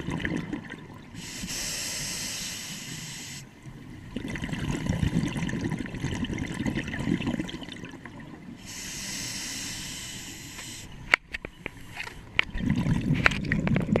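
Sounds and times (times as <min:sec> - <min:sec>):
exhaled air bubbling underwater: 0:00.0 - 0:11.6, 0:12.2 - 0:14.0
regulator hissing inhalation: 0:01.2 - 0:03.5, 0:08.6 - 0:11.0.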